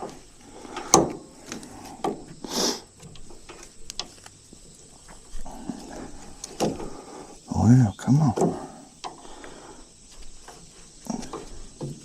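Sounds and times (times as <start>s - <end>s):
short hissing scrape: 1.7s - 2.9s.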